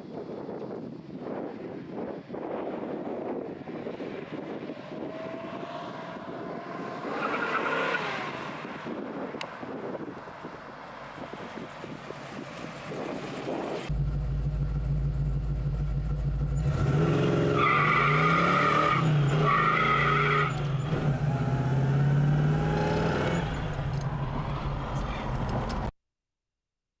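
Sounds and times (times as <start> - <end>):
car engine accelerating hard: 3.9 - 9.4, 10.0 - 25.9
tyre squeal: 17.5 - 21.0.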